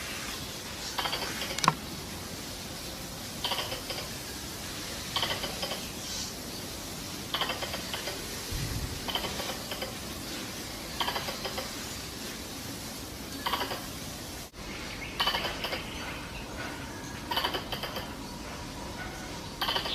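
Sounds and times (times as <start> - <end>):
squirrel chatter call clicking: 0.9 - 1.9, 3.4 - 4.2, 5.0 - 6.2, 7.3 - 8.4, 9.0 - 10.2, 10.9 - 11.8, 13.4 - 14.0, 15.2 - 18.3, 19.0 - 19.9.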